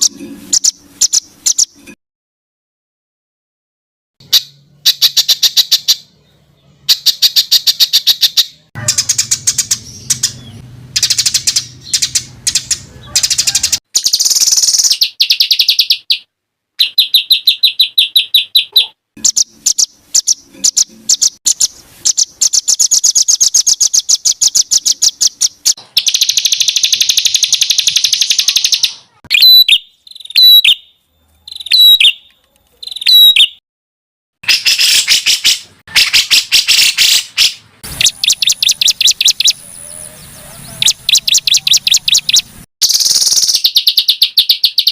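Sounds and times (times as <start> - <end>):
songbird trilling: 0.0 - 1.8, 4.3 - 33.6, 34.5 - 44.9
bird phrases with pitch sweeps: 12.6 - 13.8, 26.0 - 30.8, 38.0 - 42.5.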